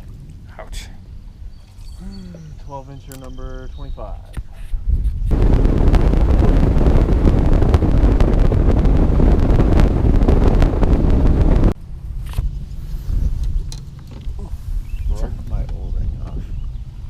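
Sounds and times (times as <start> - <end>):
boat motor rumble: 0.0 - 4.2, 5.3 - 17.0
wind buffeting microphone: 0.0 - 17.0
steady low hum: 5.3 - 17.0.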